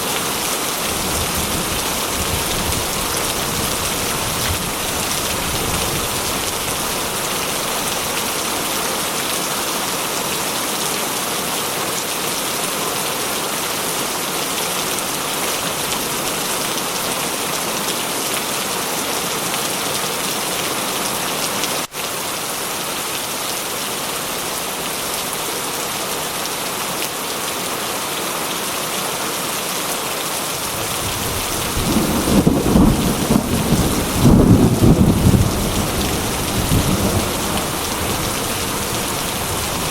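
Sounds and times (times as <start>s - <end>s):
heavy rain falling: 0.0s - 39.9s
thunder rumbling: 30.9s - 39.9s.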